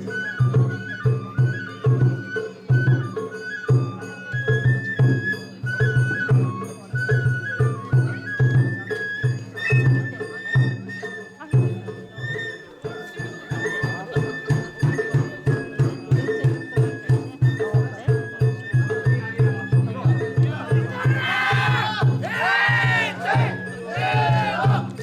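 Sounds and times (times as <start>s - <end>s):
high flute melody: 0.0s - 25.0s
steady drum beats: 19.5s - 25.0s.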